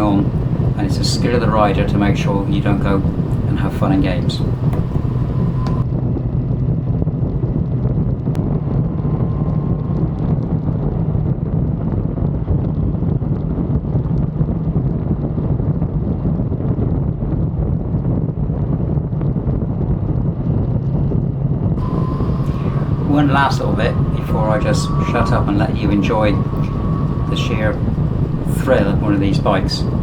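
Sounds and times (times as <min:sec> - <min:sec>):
wind buffeting microphone: 0:00.0 - 0:05.8, 0:21.8 - 0:30.0.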